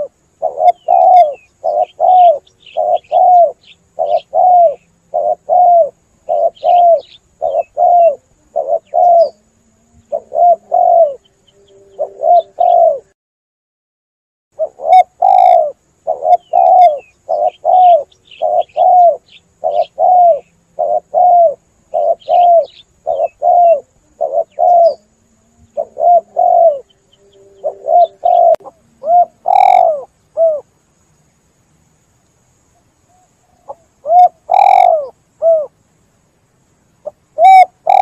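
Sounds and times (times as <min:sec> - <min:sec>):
dove cooing: 0:00.0 - 0:13.1, 0:14.6 - 0:30.7, 0:33.1 - 0:35.7, 0:37.0 - 0:38.0.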